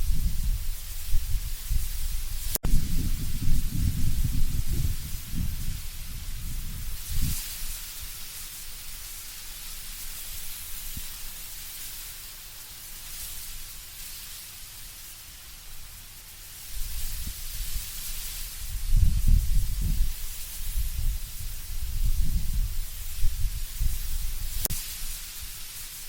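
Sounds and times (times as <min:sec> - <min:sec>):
wind gusts on microphone: 0:00.0 - 0:08.2, 0:16.8 - 0:24.8
leaves rustling in wind: 0:00.0 - 0:26.0.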